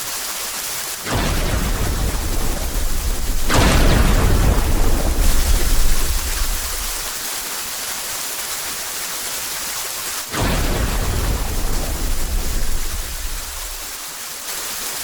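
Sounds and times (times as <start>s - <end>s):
heavy rain: 0.0s - 15.0s
thunder rumbling: 1.1s - 7.1s, 10.3s - 13.8s.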